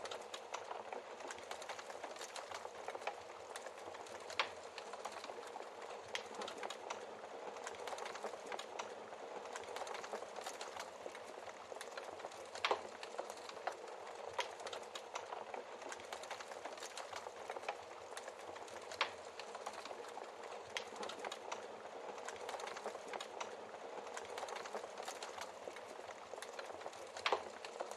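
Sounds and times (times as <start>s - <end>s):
wood fire crackling: 0.0s - 27.9s.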